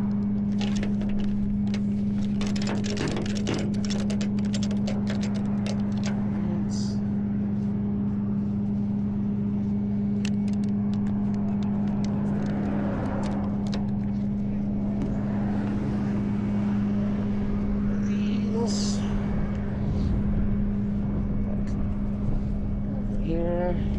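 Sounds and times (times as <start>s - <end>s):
truck engine humming: 0.0s - 19.8s
sharp metallic clicks: 0.3s - 6.2s, 10.2s - 14.2s.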